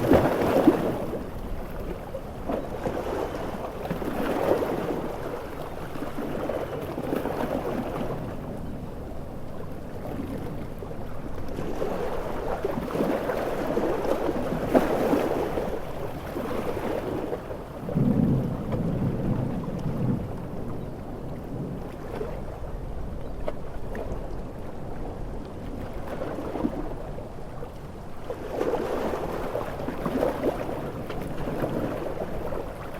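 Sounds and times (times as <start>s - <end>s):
ocean waves surging: 0.0s - 23.0s, 28.2s - 32.9s
thunder rolling: 17.8s - 22.0s.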